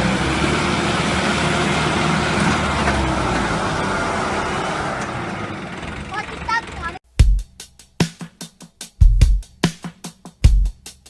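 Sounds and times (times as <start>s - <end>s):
heavy vehicle engine running: 0.0s - 7.0s
road noise: 0.0s - 7.1s.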